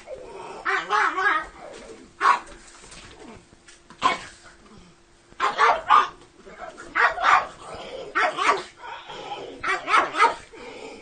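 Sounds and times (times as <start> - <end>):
small dog barking: 0.6 - 1.5, 2.2 - 2.5, 5.4 - 8.8, 9.6 - 10.5.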